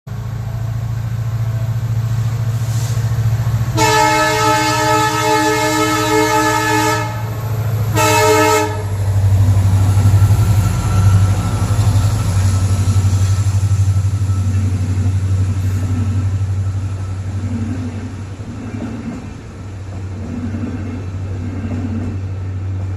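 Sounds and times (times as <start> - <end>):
diesel locomotive engine throbbing: 0.1 - 22.9
locomotive horn blasts: 3.7 - 9.0.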